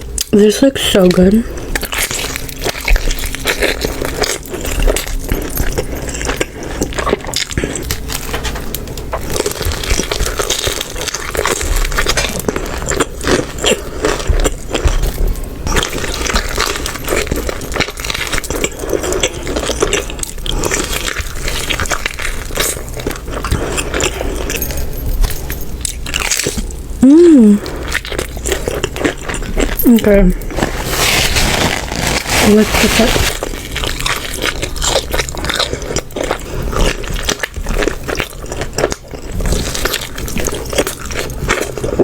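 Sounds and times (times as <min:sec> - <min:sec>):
crunchy chewing: 0:01.4 - 0:27.0, 0:27.6 - 0:42.0.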